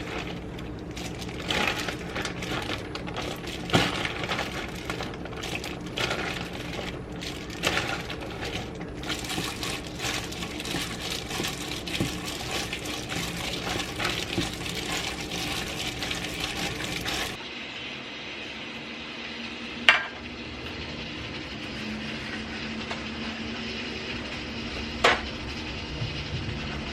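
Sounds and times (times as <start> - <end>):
oil sizzling and crackling: 0.0 - 17.4.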